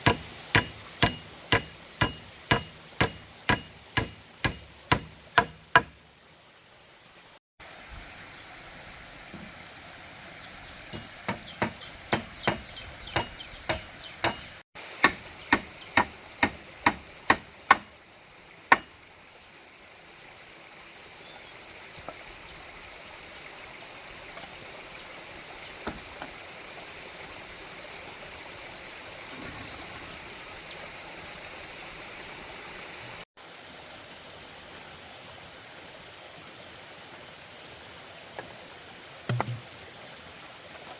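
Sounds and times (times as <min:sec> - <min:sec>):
hammer strikes: 0:00.0 - 0:06.0, 0:11.0 - 0:17.9, 0:39.3 - 0:39.6.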